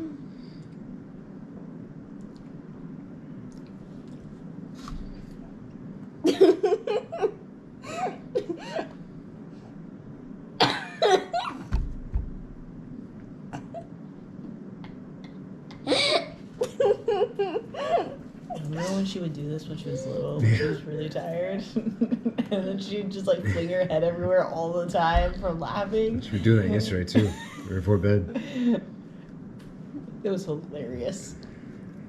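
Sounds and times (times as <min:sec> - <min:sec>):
low room hum: 0:00.0 - 0:32.0
girl laughing: 0:06.2 - 0:09.0, 0:10.7 - 0:11.7, 0:15.7 - 0:19.1, 0:19.9 - 0:21.0, 0:21.7 - 0:22.8, 0:26.0 - 0:27.7.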